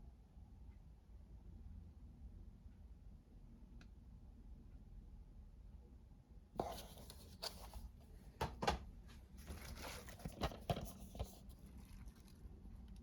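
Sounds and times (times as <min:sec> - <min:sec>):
plastic cases clicking and knocking: 0:08.4 - 0:08.8
packaging rustling: 0:09.4 - 0:12.5.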